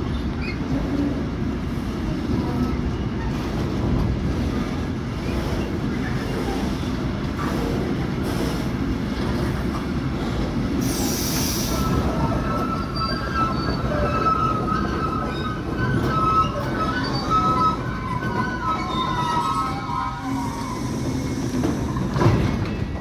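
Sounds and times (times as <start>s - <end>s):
train wheel squeal: 0.0s - 1.0s, 4.4s - 8.8s, 10.2s - 23.0s
train wagons rumbling on rails: 0.0s - 23.0s.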